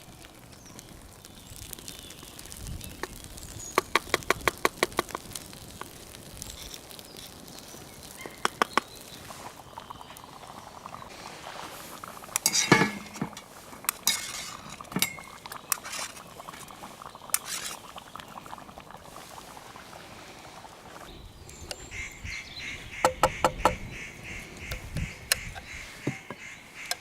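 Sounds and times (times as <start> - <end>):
metal cookware clinking: 12.4 - 16.2.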